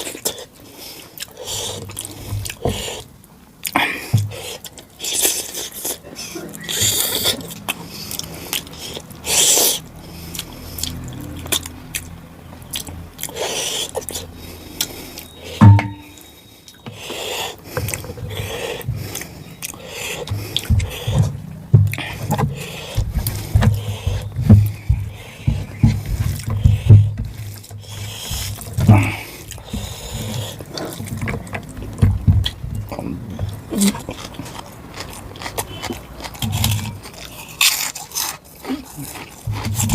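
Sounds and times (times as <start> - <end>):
chewing and wet mouth clicks: 0.0 - 15.4, 17.8 - 21.3, 33.4 - 39.9.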